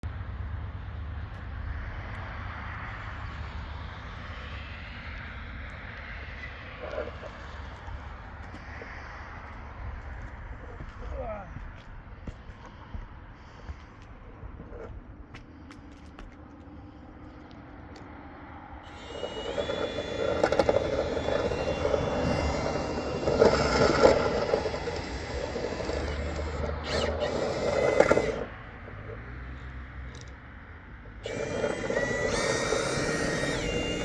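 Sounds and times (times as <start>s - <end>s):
power tool scraping: 18.8s - 30.4s, 31.0s - 34.0s.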